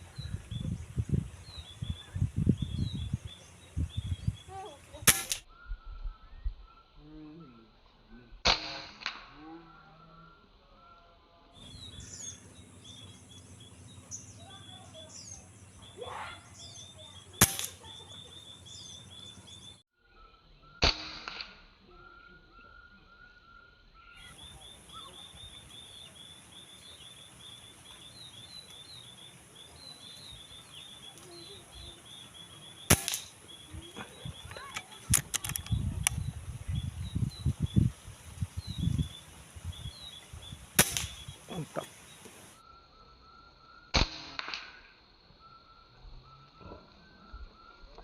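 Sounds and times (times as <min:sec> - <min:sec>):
sparrows chirping: 0:00.0 - 0:07.0, 0:11.6 - 0:20.8, 0:22.0 - 0:42.7
air rifle shots: 0:05.0 - 0:05.4, 0:17.4 - 0:18.0, 0:32.8 - 0:33.6, 0:40.8 - 0:41.4, 0:44.0 - 0:44.7.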